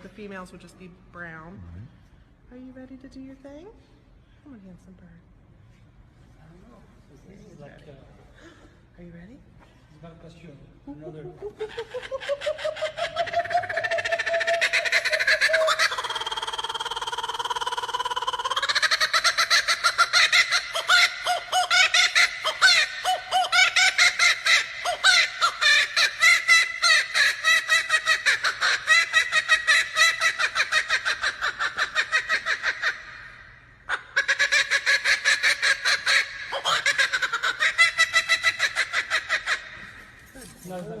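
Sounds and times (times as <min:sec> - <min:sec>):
kookaburra laughing call: 0:11.1 - 0:40.2.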